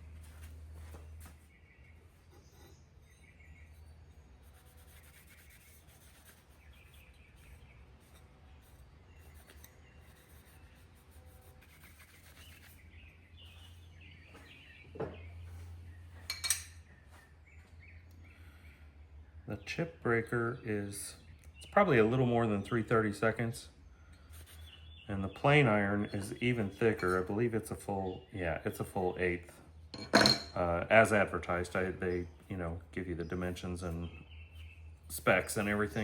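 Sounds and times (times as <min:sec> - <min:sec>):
faint bird chirps: 0:00.8 - 0:19.8
metallic clink: 0:30.0 - 0:30.6.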